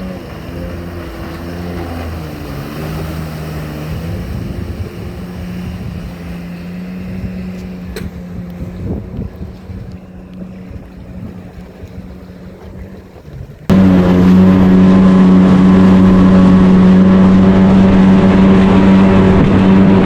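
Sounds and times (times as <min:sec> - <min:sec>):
jet ski engine running: 0:00.0 - 0:20.0
steady rushing noise: 0:13.7 - 0:20.0.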